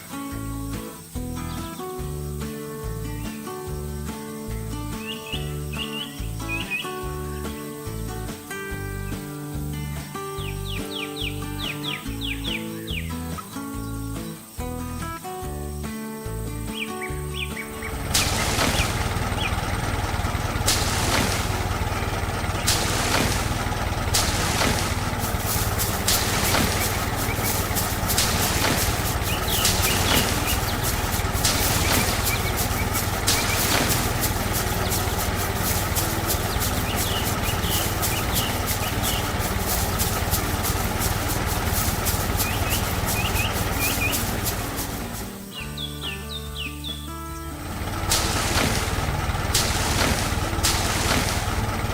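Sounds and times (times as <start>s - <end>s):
music: 0.0s - 21.6s, 22.6s - 51.9s
bird chirps: 4.9s - 7.0s, 10.2s - 14.7s, 16.7s - 19.8s, 24.6s - 47.5s
vehicle engine rumbling: 17.6s - 46.4s, 47.4s - 51.9s
motor running: 17.8s - 45.5s, 47.6s - 51.9s
short bursts of hiss: 18.1s - 19.0s, 20.7s - 21.8s, 22.6s - 45.6s
rhythmic clicking: 20.2s - 45.6s.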